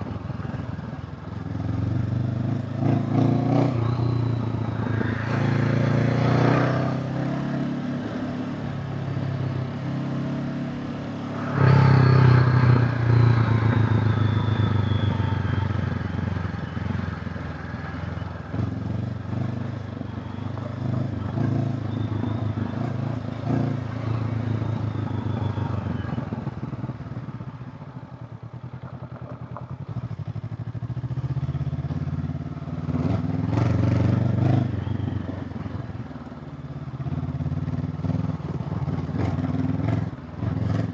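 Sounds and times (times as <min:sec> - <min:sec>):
motorcycle engine revving: 0:01.6 - 0:10.7.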